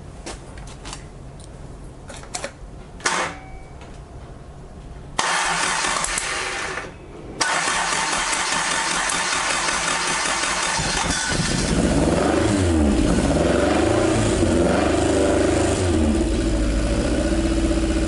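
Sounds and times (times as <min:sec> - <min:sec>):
car engine starting and running: 0:05.2 - 0:18.0.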